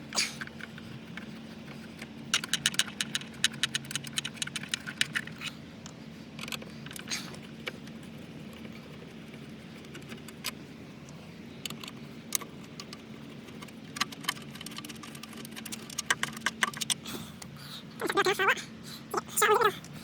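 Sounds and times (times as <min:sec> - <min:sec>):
steady low hum: 0:00.0 - 0:20.0
screw clicks and rattles: 0:00.4 - 0:05.5, 0:11.6 - 0:17.0.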